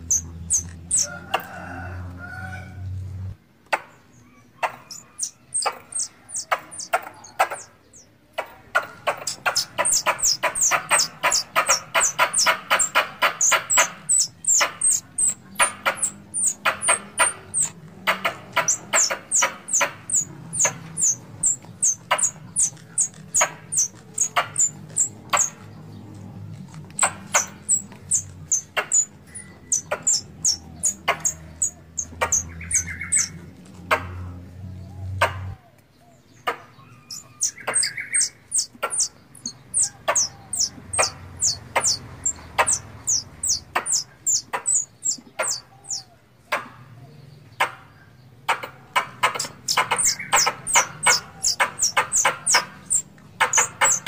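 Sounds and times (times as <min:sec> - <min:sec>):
squirrel chirping: 0:00.0 - 0:01.2, 0:04.6 - 0:25.6, 0:26.9 - 0:33.6, 0:36.8 - 0:46.1, 0:48.6 - 0:54.0.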